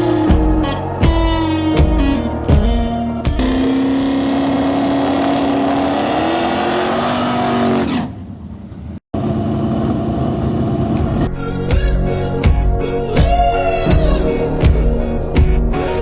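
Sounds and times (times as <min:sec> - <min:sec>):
car engine running hard: 0:03.4 - 0:11.3.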